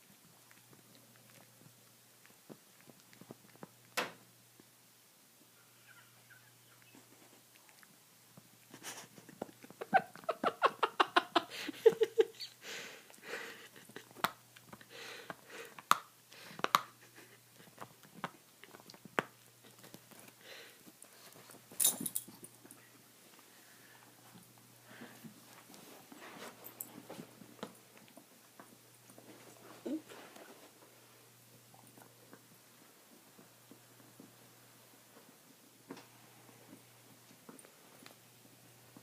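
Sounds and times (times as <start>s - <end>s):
dog gnawing on bone: 0.0s - 4.7s, 17.5s - 21.7s.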